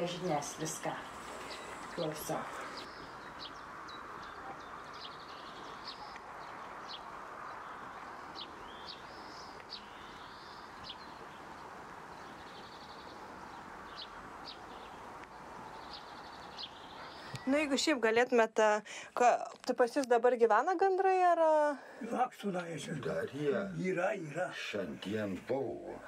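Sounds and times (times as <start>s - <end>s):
birds chirping and trilling: 0.0s - 18.4s
steady background hiss: 0.0s - 19.3s, 21.1s - 26.0s.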